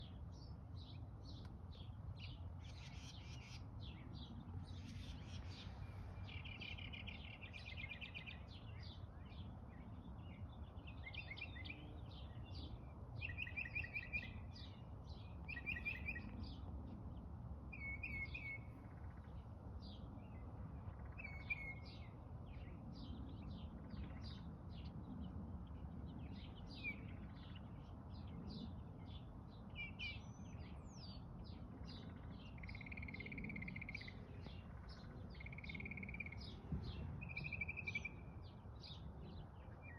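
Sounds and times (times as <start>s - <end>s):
small birds chirping and singing: 0.0s - 39.9s.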